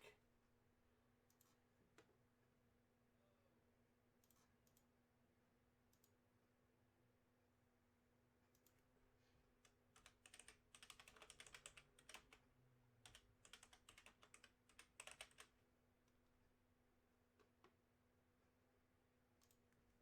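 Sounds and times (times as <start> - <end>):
typing on a keyboard: 9.6 - 12.4, 13.0 - 15.6.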